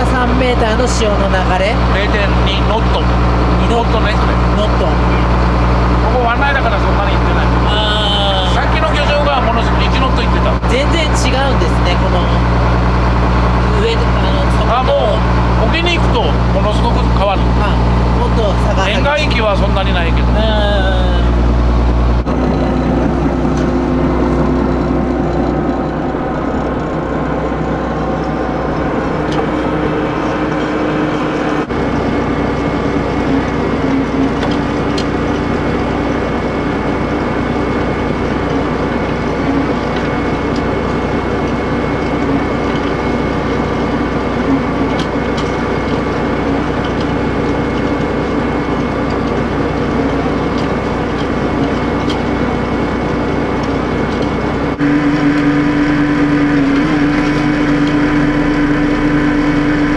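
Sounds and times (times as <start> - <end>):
boat engine humming: 0.0 - 59.9.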